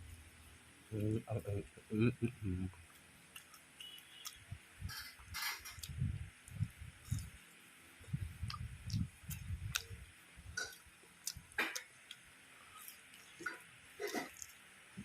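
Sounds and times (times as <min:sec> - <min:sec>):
person chewing crunchy food: 0:02.9 - 0:07.4, 0:08.0 - 0:14.6.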